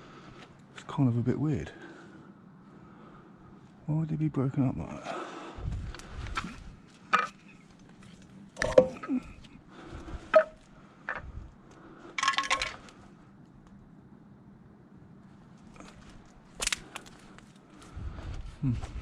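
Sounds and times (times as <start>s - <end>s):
hard objects knocking and clinking: 8.6s - 9.2s, 10.4s - 11.2s, 12.2s - 12.9s.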